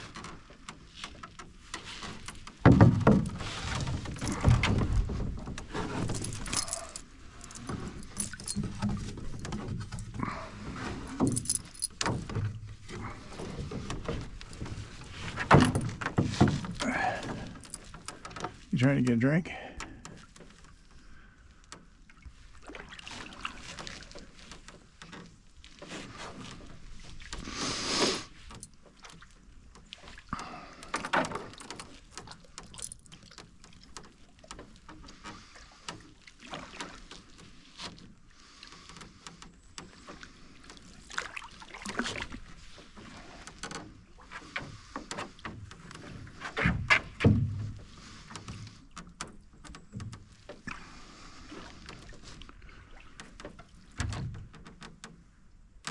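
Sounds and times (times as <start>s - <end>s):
paddle thud: 0.0s - 7.0s, 7.6s - 20.6s, 28.2s - 55.9s
canoe paddle splashing in water: 0.0s - 11.2s, 22.2s - 49.6s, 50.2s - 54.5s.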